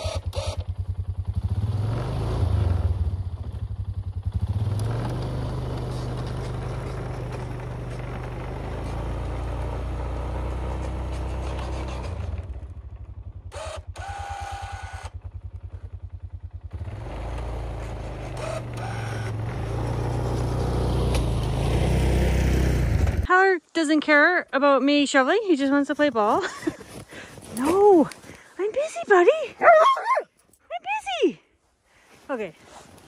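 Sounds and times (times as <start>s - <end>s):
quad engine running: 0.0s - 23.3s.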